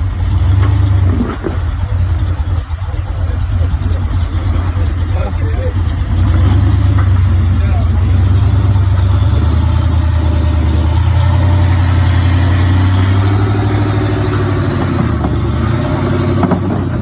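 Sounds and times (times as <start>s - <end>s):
vehicle engine droning at low revs: 0.0s - 17.0s.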